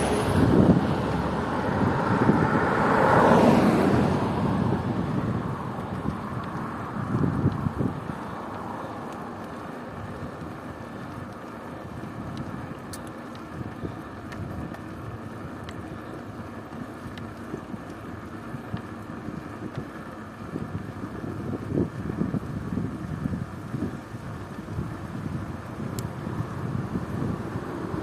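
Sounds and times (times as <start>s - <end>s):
bicycle rolling noise: 0.0s - 28.0s
wind buffeting microphone: 0.0s - 28.0s
faint ticks: 5.9s - 20.2s, 25.9s - 26.1s.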